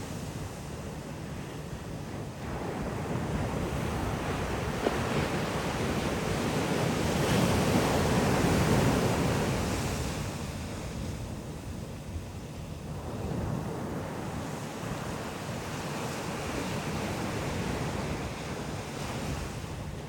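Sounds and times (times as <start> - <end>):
wind buffeting microphone: 0.2 - 20.0
sea waves breaking: 2.4 - 11.3.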